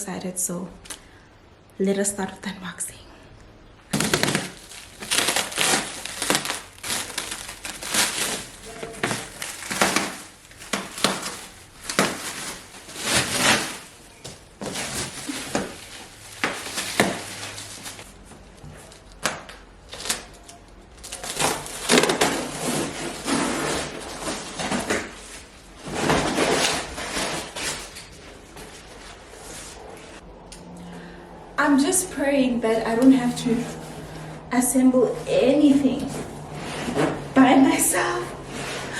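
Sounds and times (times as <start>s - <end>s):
packaging rustling and ripping: 3.9s - 30.2s.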